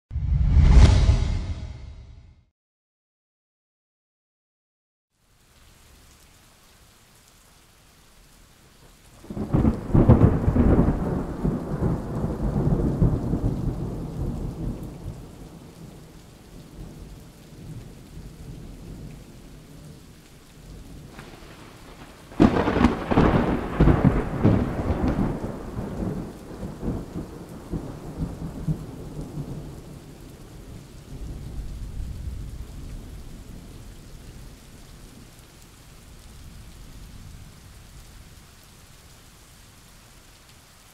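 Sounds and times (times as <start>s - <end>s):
rain hissing: 5.1s - 40.9s
thunder rumbling: 9.2s - 16.0s, 20.7s - 30.1s.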